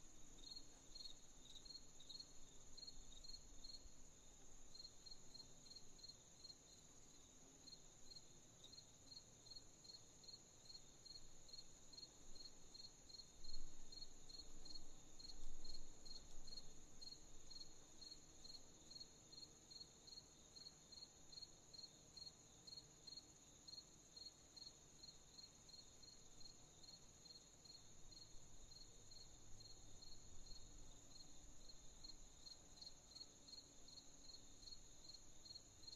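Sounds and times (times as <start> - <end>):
crickets chirping: 0.0 - 35.9
insect trill: 7.6 - 35.9.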